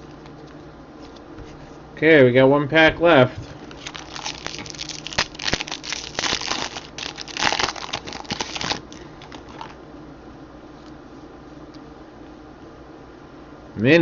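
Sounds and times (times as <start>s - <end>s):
foil wrapper crinkling and tearing: 3.7s - 9.8s.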